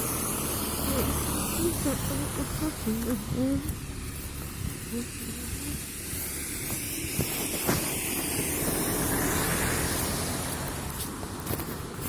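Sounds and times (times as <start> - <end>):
rain falling: 0.0 - 7.0.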